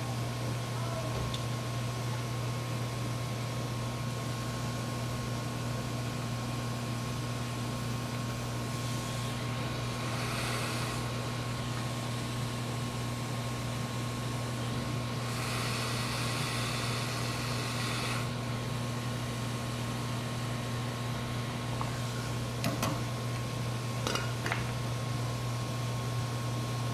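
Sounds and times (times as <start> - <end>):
low electrical hum: 0.0 - 26.9
hiss: 8.8 - 11.5, 15.2 - 18.4.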